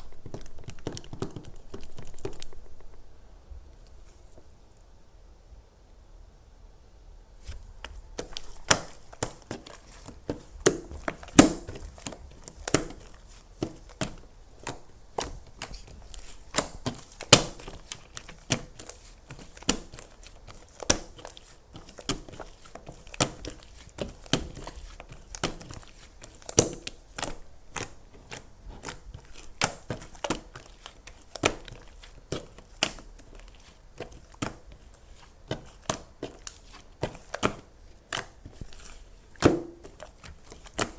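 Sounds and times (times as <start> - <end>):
crunching and crinkling snaps: 0.0 - 4.9, 7.4 - 40.9.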